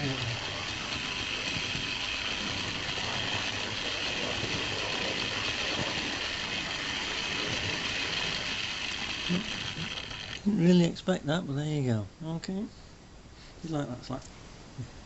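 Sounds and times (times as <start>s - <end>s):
small electric motor whirring: 0.0s - 10.5s.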